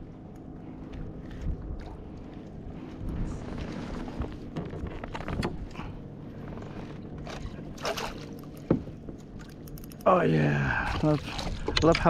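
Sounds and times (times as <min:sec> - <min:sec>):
low steady rumble: 0:00.0 - 0:12.0
water splashing: 0:07.2 - 0:09.6, 0:10.6 - 0:12.0.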